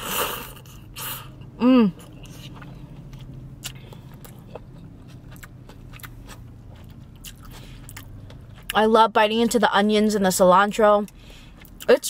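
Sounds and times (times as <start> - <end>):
low steady hum: 0.0 - 12.0
chewing noodles: 2.0 - 8.8.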